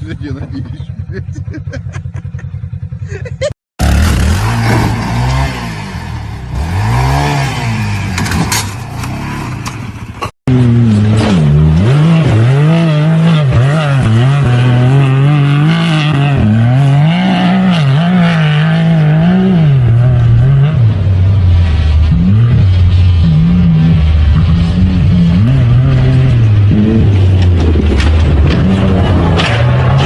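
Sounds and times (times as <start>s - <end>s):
off-road engines revving: 0.0s - 30.0s
louder engine revving: 3.8s - 30.0s.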